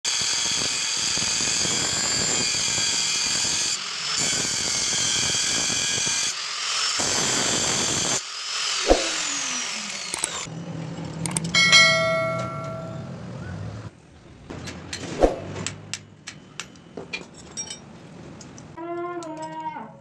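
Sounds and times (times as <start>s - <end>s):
power tool whining: 0.1s - 11.8s
sharp metallic clang: 11.3s - 13.1s.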